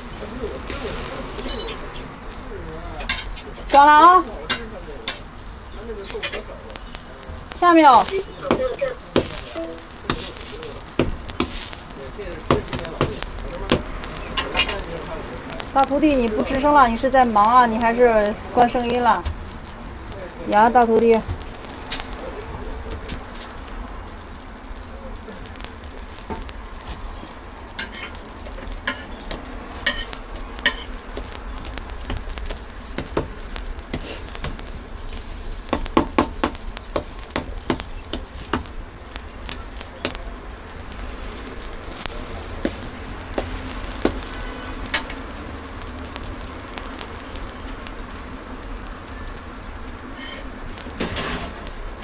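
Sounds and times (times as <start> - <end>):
flatbreads sizzling on a griddle: 0.0 - 52.0
cooking utensils clicking and knocking: 0.1 - 19.3, 26.2 - 40.3, 42.0 - 45.5, 50.0 - 51.7.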